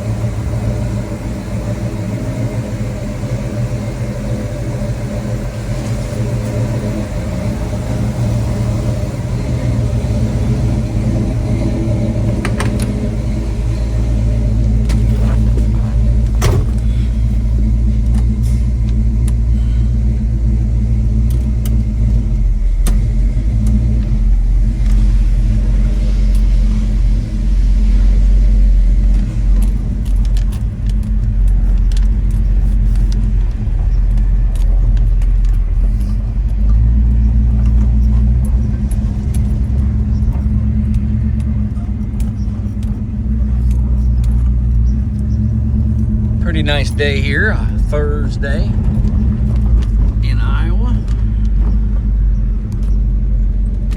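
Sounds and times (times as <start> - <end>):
car engine rumbling while driving: 0.0 - 53.9
road noise: 0.0 - 53.9
small ticks and rattles: 28.8 - 46.4.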